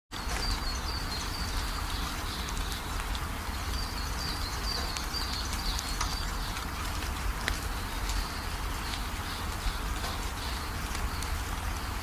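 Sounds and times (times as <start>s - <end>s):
songbird singing: 0.1s - 12.0s.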